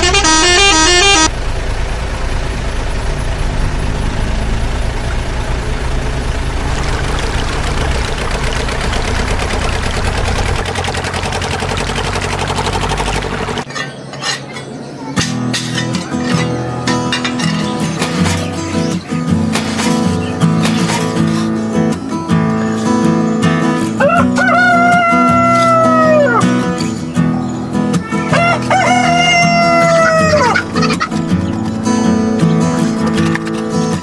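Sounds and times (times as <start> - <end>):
vehicle horn: 0.0 - 1.3
vehicle engine running: 0.0 - 13.7.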